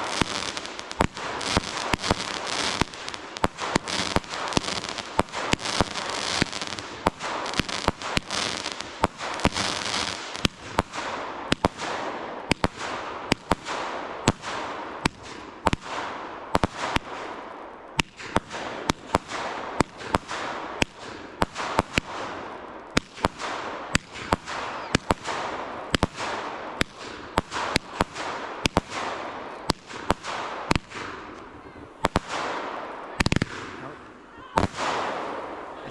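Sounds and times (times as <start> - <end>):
fireworks crackling hiss: 0.0 - 11.9
fireworks bangs: 0.0 - 35.9.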